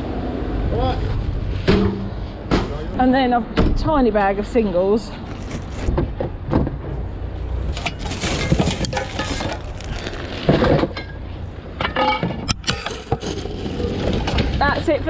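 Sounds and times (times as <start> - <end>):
scrap metal clinking and clattering: 7.7 - 11.2.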